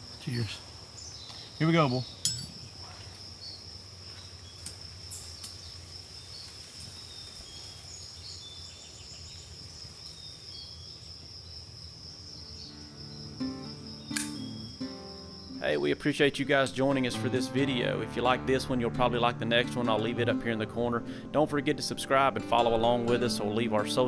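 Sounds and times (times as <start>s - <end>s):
faint bird chirps: 0.0s - 16.2s
insect trill: 0.0s - 18.0s.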